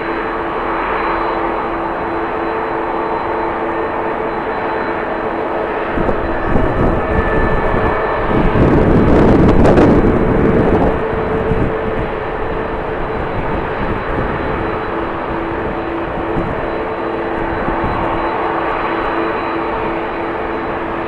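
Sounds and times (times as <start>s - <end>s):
jet engines whining: 0.0s - 21.0s
wind buffeting microphone: 5.4s - 21.0s.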